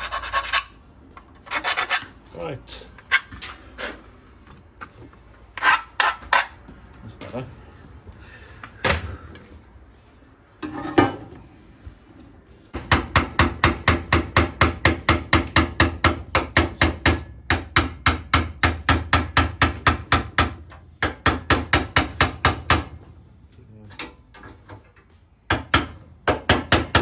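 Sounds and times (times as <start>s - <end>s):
hammer tapping on steel panel: 12.8s - 23.0s, 25.5s - 27.0s.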